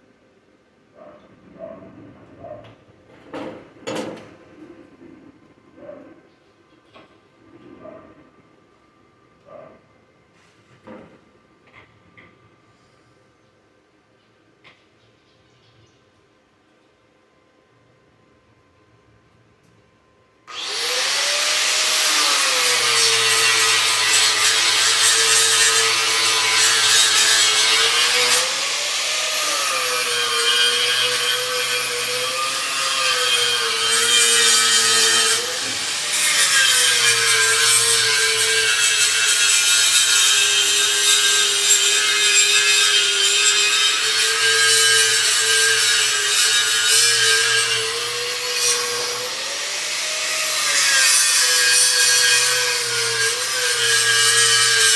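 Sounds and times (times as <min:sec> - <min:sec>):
angle grinder cutting metal: 0:20.5 - 0:54.9.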